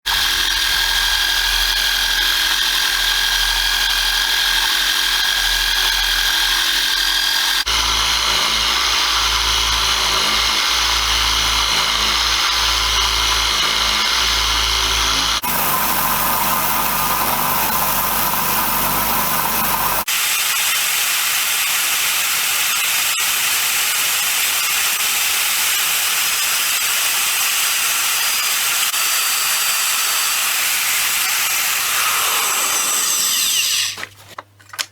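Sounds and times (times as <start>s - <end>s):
power tool motor whine: 0.1s - 34.0s
sanding hiss: 15.4s - 20.1s.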